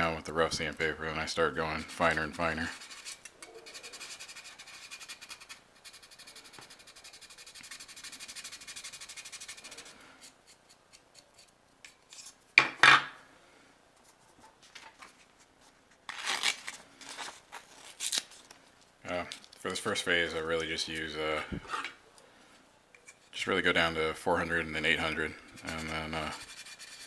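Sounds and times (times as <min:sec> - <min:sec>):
sandpaper rubbing plastic: 0:01.9 - 0:11.5, 0:24.8 - 0:27.0.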